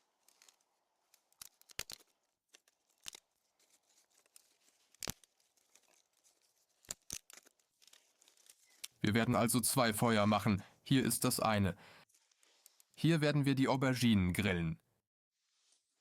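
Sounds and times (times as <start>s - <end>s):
twigs rustling: 0.0s - 9.0s
dry twigs snapping: 0.2s - 9.0s.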